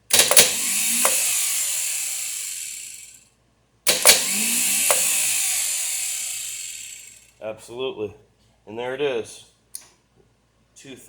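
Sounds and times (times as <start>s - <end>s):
starter motor whirring: 0.0s - 3.2s, 3.9s - 7.2s
starter switch clicks: 0.1s - 3.0s, 3.9s - 7.0s.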